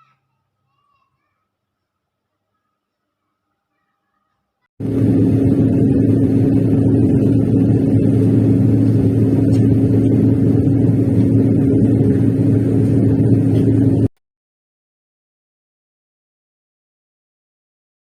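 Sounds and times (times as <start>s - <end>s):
ceiling fan humming: 4.8s - 14.1s.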